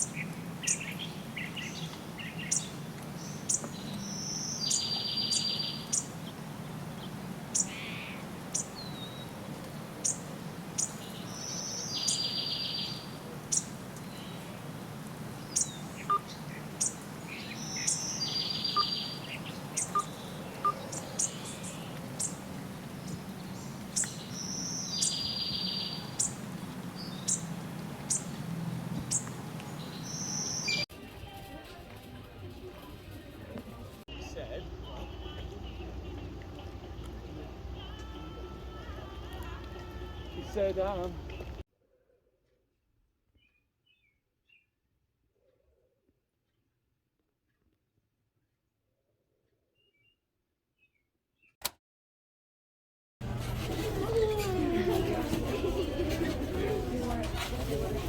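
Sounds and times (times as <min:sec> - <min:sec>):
short sharp bird chirps: 0:15.6 - 0:22.3
steady low hum: 0:33.8 - 0:41.6.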